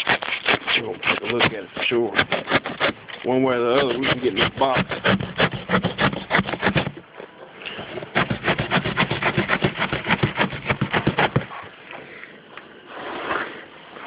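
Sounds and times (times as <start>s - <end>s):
blade sawing through cardboard: 0.0s - 7.0s, 7.8s - 11.7s.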